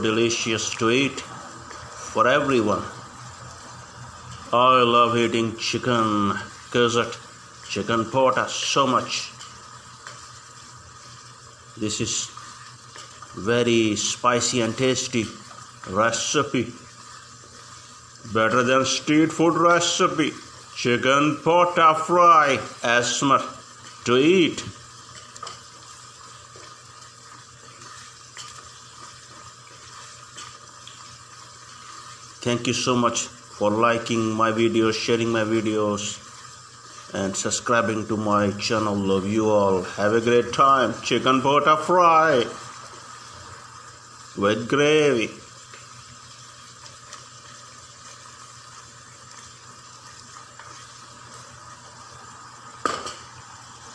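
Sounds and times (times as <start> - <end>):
gizzards sizzling in a pan: 0.0 - 53.9
spatula scraping a pan: 9.0 - 19.1, 24.9 - 32.4, 36.0 - 37.2, 45.7 - 51.7.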